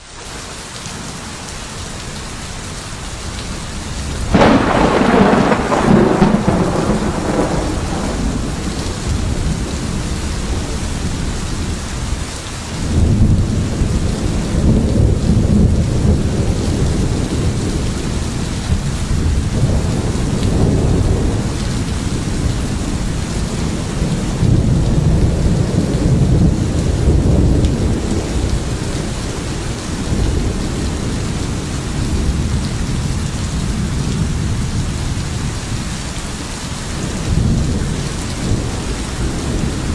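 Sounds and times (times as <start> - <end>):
steady rain: 0.0 - 39.9
low rumbles of thunder: 4.0 - 12.2, 12.8 - 35.8, 37.0 - 39.9
sharp thunderclap: 4.3 - 11.3.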